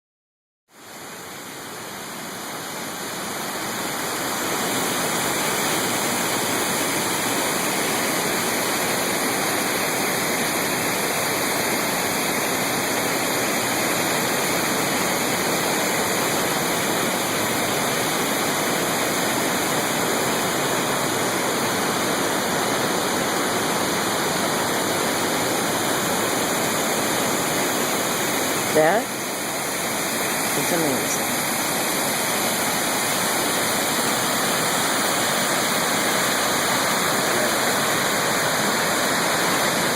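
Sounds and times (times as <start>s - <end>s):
waterfall rushing: 0.8s - 39.9s.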